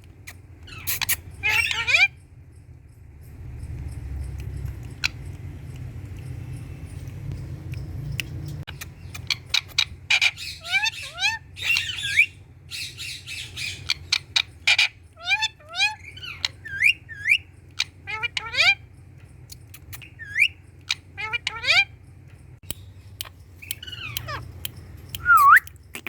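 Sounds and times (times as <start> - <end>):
low steady rumble: 0.0 - 25.9
parrot squawking: 0.7 - 2.2, 8.7 - 18.9, 19.9 - 22.0, 23.7 - 24.6
parrot clicks: 22.6 - 26.0.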